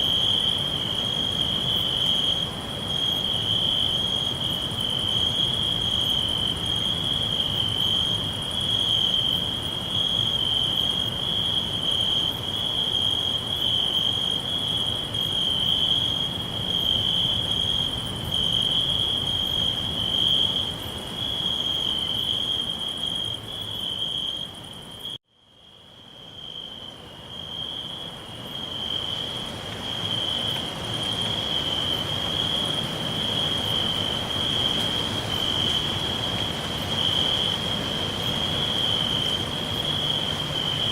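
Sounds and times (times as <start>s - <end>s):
crickets chirring: 0.0s - 40.9s.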